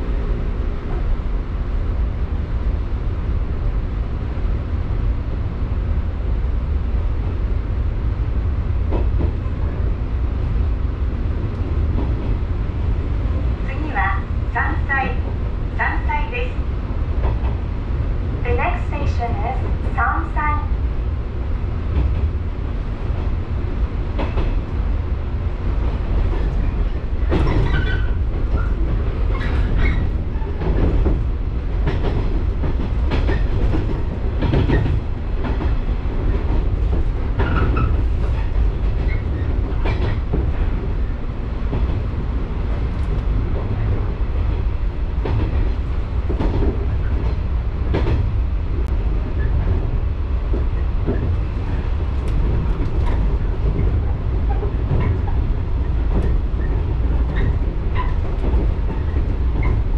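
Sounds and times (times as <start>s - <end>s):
train rumbling inside carriage: 0.0s - 59.9s
wheels clicking over rail joints: 26.1s - 40.6s.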